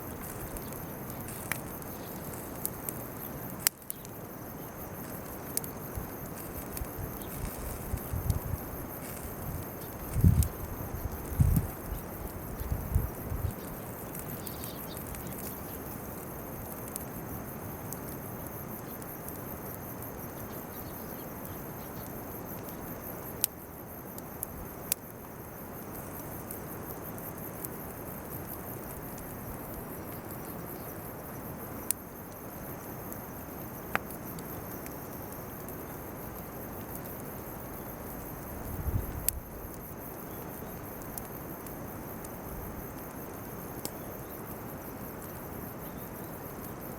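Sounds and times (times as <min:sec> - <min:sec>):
bonfire hissing: 0:00.0 - 0:46.9
fire popping: 0:00.0 - 0:46.9
insects chirping: 0:00.0 - 0:46.9.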